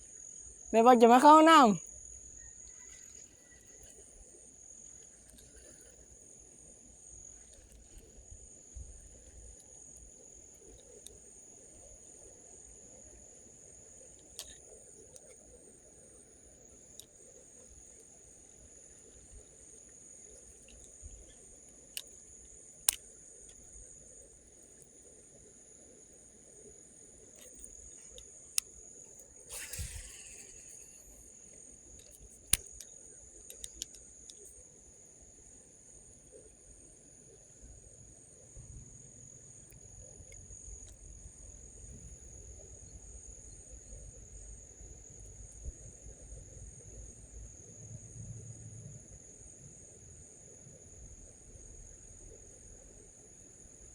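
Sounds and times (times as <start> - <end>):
insect chirring: 0.0 - 53.9
sharp clicks: 14.1 - 15.4, 27.4 - 31.2, 32.0 - 34.5.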